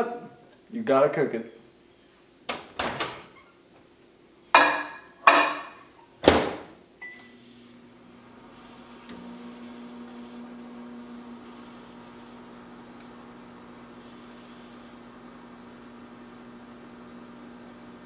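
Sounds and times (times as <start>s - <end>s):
microwave oven humming: 7.0s - 18.0s.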